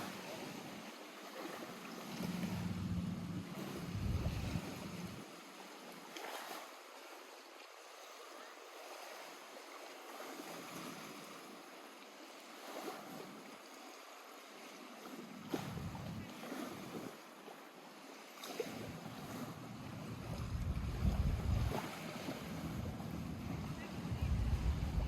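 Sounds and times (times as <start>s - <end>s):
lake water lapping at shore: 0.0s - 25.0s
wind buffeting microphone: 2.1s - 5.2s, 15.5s - 16.3s, 19.2s - 25.0s.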